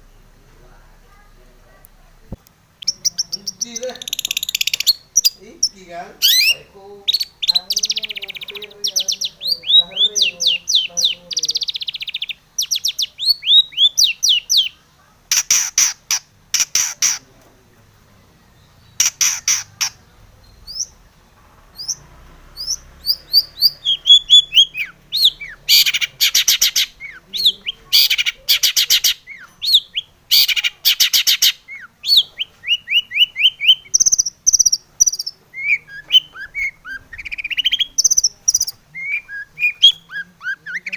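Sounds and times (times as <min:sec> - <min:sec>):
bird singing with harsh rattles: 0:02.8 - 0:17.3, 0:18.6 - 0:21.0, 0:21.7 - 0:40.9.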